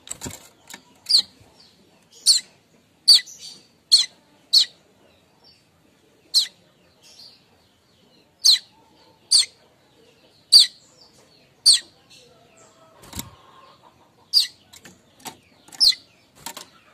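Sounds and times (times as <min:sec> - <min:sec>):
bird giving sharp chirps: 0:02.2 - 0:02.5, 0:10.5 - 0:10.8, 0:11.6 - 0:11.9, 0:14.3 - 0:14.6.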